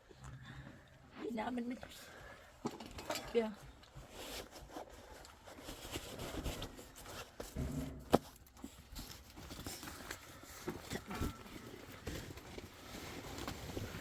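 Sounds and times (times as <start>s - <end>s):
rustling: 1.3s - 14.0s
small knocks of handling things: 7.4s - 10.9s.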